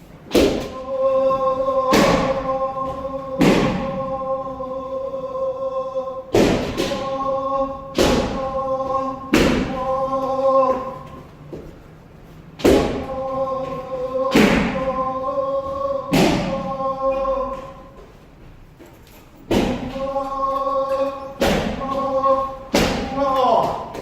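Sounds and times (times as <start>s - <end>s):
people shouting: 0.3s - 11.1s, 12.6s - 17.9s, 19.5s - 24.0s
bamboo swords striking: 1.9s - 2.4s, 6.3s - 7.1s, 7.9s - 8.5s, 12.6s - 13.1s, 16.1s - 16.6s, 19.5s - 20.1s, 21.4s - 24.0s
feet stamping: 9.3s - 16.9s, 17.5s - 24.0s.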